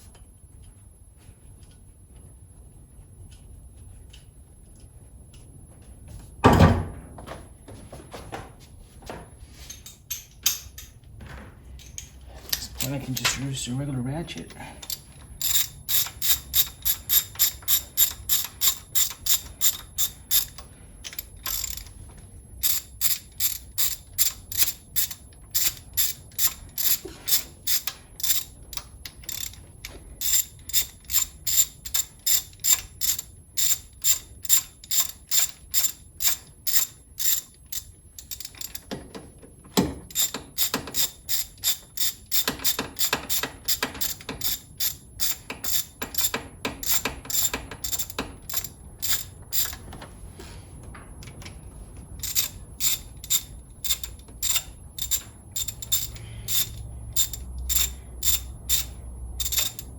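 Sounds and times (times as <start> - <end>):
hand ratchet clicking: 14.8 - 22.0, 22.6 - 39.1, 39.8 - 49.9, 52.0 - 59.9.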